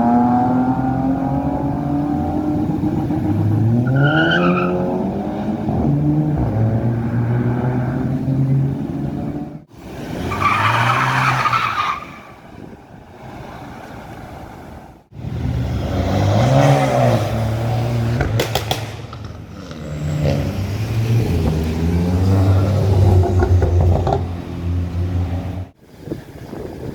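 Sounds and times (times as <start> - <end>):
car engines revving past: 0.0 - 12.4, 13.1 - 26.2
sharp cracks: 18.0 - 20.0.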